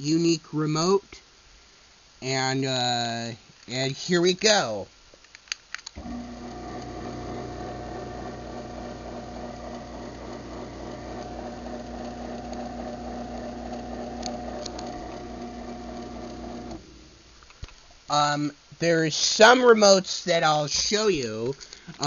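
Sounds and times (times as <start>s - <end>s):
garage door opener clicks: 6.0s - 16.9s
garage door motor humming: 6.0s - 17.2s.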